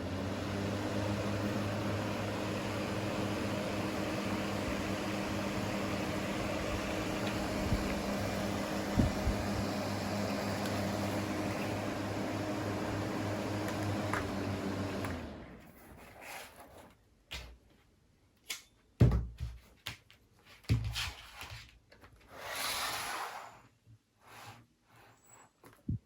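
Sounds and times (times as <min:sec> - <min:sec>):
small fan motor hum: 0:00.0 - 0:15.7.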